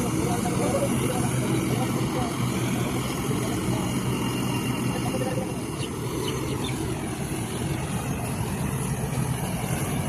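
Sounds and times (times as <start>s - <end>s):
combine harvester engine drone: 0.0s - 10.0s.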